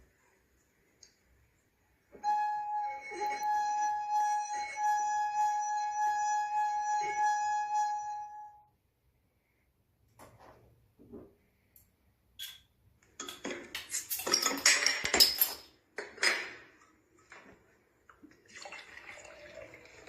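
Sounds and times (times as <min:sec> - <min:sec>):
singing glass tone: 0:02.2 - 0:08.7.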